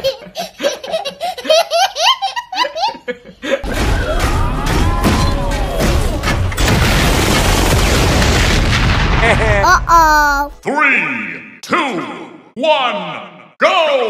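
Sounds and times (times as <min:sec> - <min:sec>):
child laughing: 0:00.0 - 0:03.6, 0:09.2 - 0:10.6.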